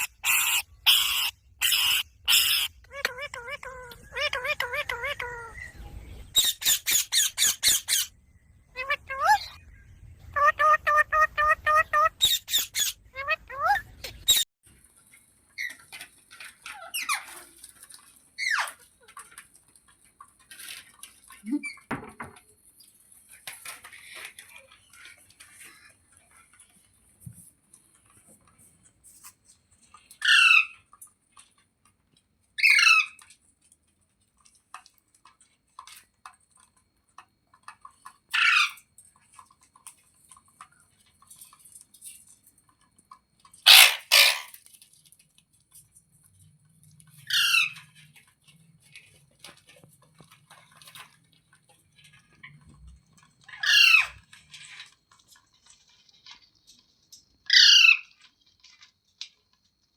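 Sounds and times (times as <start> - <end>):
parakeet screeching: 0.0 - 5.7, 6.4 - 8.1, 8.8 - 9.6, 10.3 - 14.4, 43.7 - 44.6, 47.3 - 47.8, 53.5 - 54.2, 57.5 - 58.1.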